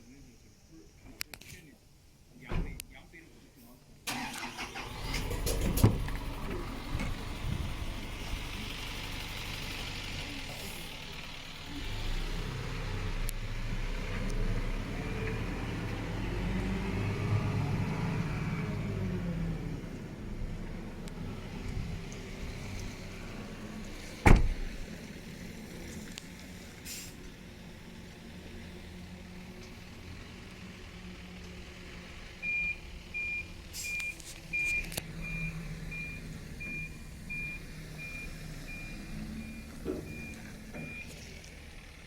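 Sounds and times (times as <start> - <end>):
vehicle engine running: 4.8 - 15.3, 19.2 - 42.0.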